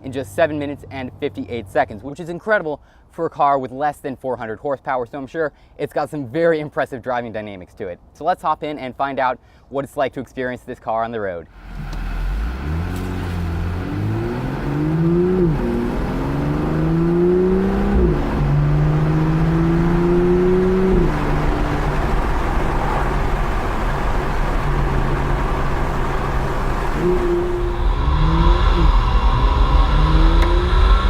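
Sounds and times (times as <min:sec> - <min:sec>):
road noise: 0:00.0 - 0:02.2, 0:11.5 - 0:31.0
car engine accelerating: 0:11.5 - 0:31.0.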